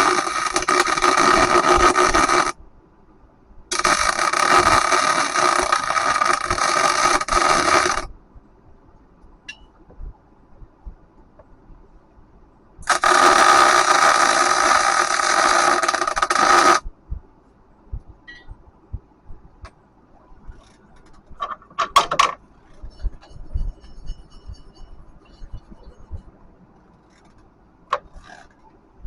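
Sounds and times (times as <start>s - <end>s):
welding arc crackling: 0.0s - 2.6s, 3.7s - 8.1s, 12.8s - 16.9s.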